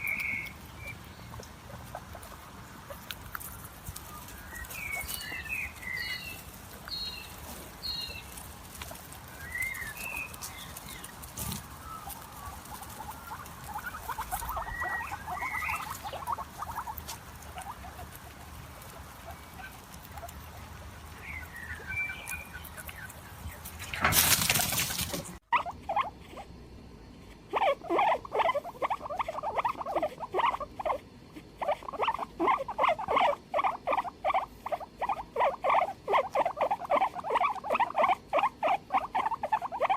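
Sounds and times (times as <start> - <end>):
guinea pigs squeaking: 0.0 - 26.5, 27.2 - 39.9
light patter: 0.0 - 26.5.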